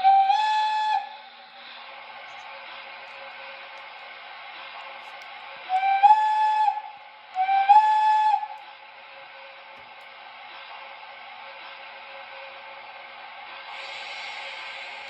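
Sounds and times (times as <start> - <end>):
model steam whistle blasts: 0.0 - 1.3, 5.7 - 8.6
steady hiss: 8.6 - 15.0.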